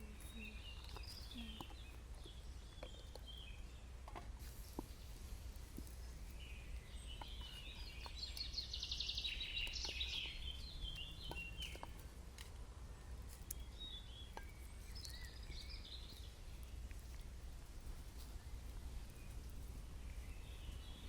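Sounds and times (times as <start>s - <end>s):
bird singing trills: 0.0s - 4.0s, 5.8s - 12.1s, 13.0s - 16.9s, 18.4s - 21.0s.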